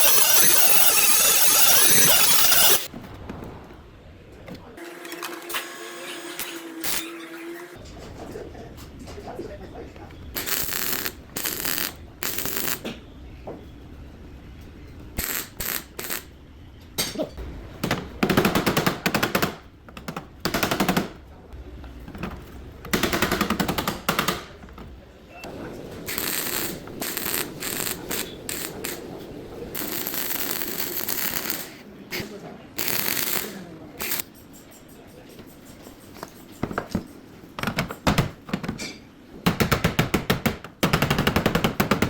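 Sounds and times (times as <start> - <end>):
grinding noise: 0.0 - 2.9, 25.8 - 31.5.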